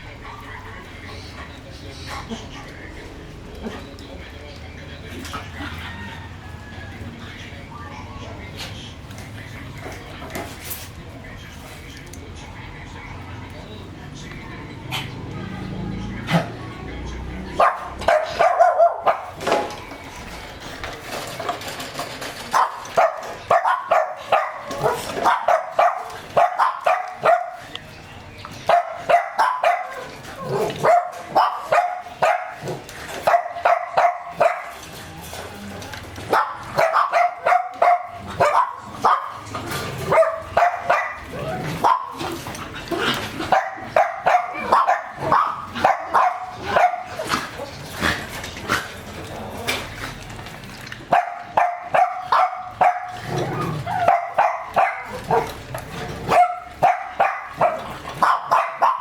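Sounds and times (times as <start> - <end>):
dog barking: 17.5 - 19.4, 22.5 - 27.6, 28.7 - 34.8, 36.3 - 42.3, 43.5 - 47.7, 51.1 - 55.6, 56.2 - 59.0.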